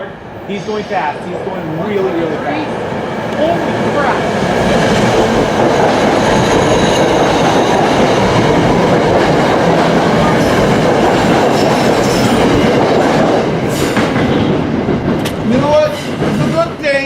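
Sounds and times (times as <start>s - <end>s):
train passing at speed: 0.0s - 17.0s
wheels clickety-clack: 4.6s - 17.0s.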